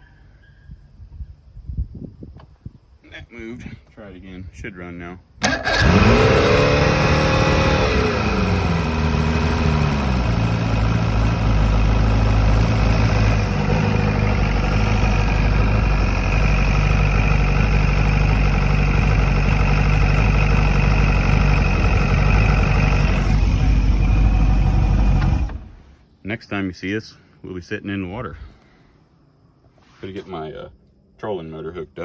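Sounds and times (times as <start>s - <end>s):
outboard motor idling: 5.4s - 25.9s.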